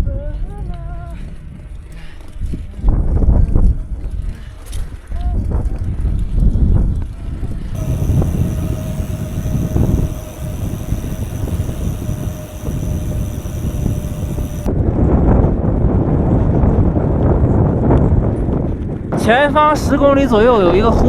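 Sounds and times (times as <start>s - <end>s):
faint high whine and hiss: 7.8s - 14.7s
wind buffeting microphone: 7.8s - 14.7s.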